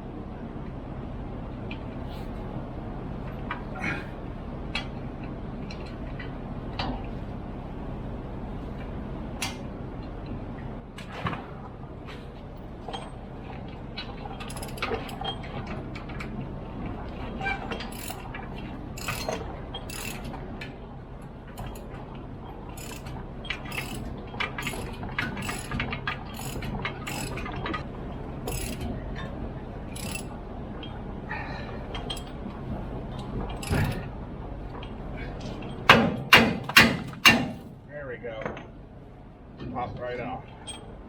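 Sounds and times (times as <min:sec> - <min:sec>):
steady low hum: 0:00.0 - 0:36.4
hand tools clinking on metal: 0:14.4 - 0:15.2, 0:17.9 - 0:18.2, 0:19.0 - 0:20.3, 0:22.8 - 0:23.1, 0:23.7 - 0:24.0, 0:24.6 - 0:25.8, 0:26.4 - 0:27.4, 0:28.5 - 0:28.8, 0:30.0 - 0:30.3
ratchet wrench clicking: 0:14.5 - 0:15.2, 0:17.9 - 0:18.2, 0:19.0 - 0:20.3, 0:21.6 - 0:21.8, 0:22.8 - 0:23.1, 0:23.7 - 0:25.8, 0:26.4 - 0:27.4, 0:28.5 - 0:28.8, 0:30.0 - 0:30.3.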